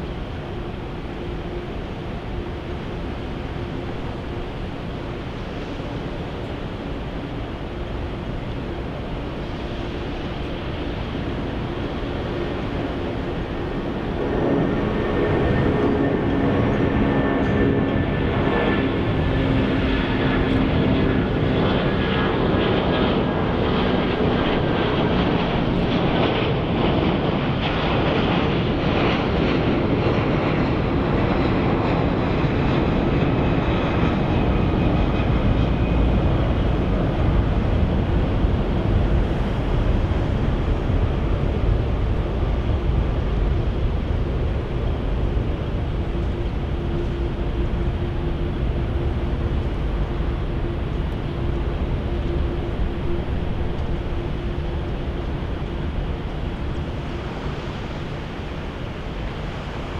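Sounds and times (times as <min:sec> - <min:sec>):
jet engines rushing: 0:00.0 - 0:59.9.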